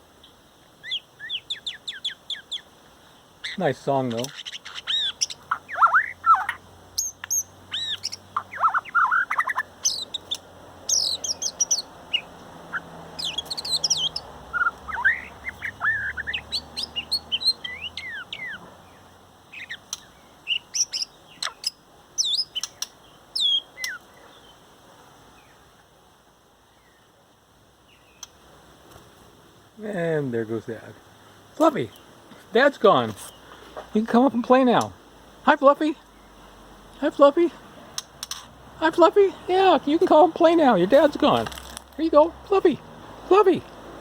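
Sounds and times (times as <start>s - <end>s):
bird singing whistled phrases: 0.8s - 2.6s, 4.2s - 12.3s, 13.2s - 18.6s, 20.5s - 24.0s.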